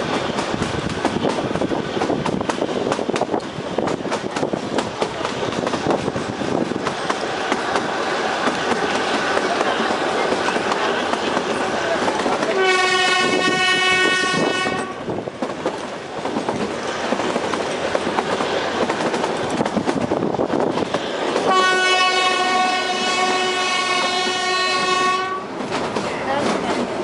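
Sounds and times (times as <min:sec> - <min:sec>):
train wheels clattering: 0:00.0 - 0:27.0
train horn blast: 0:12.5 - 0:15.1, 0:21.4 - 0:25.5.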